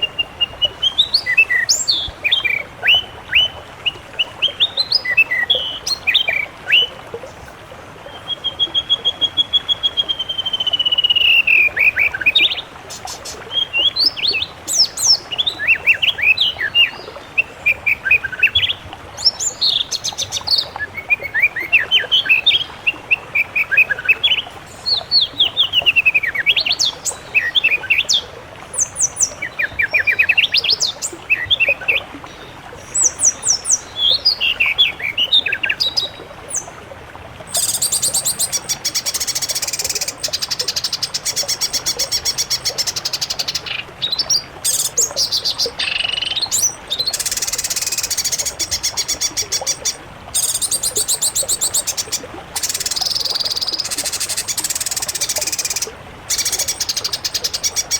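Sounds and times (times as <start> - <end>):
songbirds chirping and whistling: 37.5 - 57.9.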